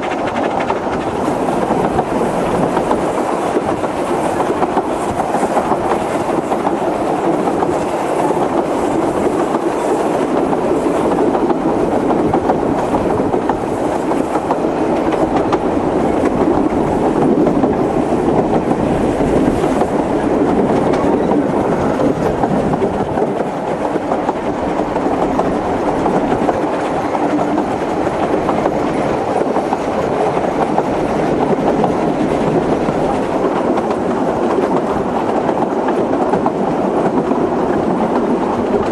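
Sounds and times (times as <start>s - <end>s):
train wheels rumbling on rails: 0.0s - 38.9s
faint track knocks: 10.3s - 38.9s.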